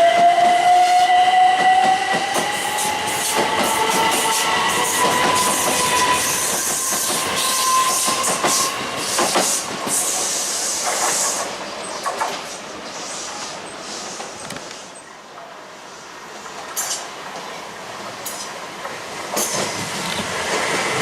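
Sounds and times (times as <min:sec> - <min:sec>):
train wheels clattering over rails: 0:01.5 - 0:12.6, 0:16.5 - 0:21.0.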